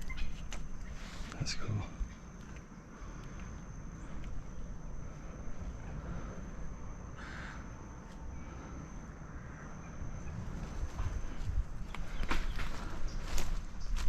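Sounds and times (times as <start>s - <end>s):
wind rumble on microphone: 9.8s - 14.0s.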